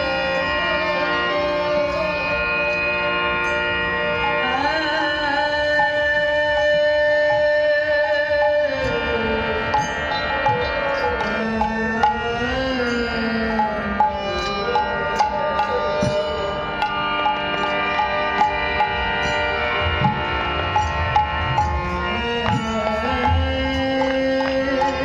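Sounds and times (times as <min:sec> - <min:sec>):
sustained harmonium chords: 0:00.0 - 0:25.0
hand drum beat: 0:14.4 - 0:25.0.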